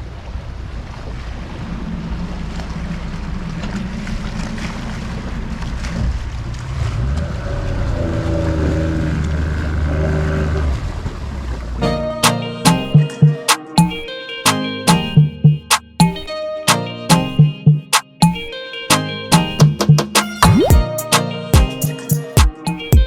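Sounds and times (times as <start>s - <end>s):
motorboat engine running: 0.0s - 12.2s.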